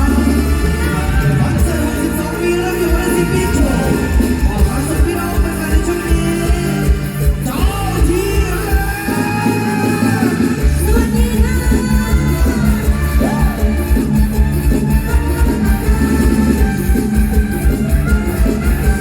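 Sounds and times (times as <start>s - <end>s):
person singing: 0.0s - 14.4s
heavy steady drum beat: 0.0s - 19.0s
live band music: 0.0s - 19.0s.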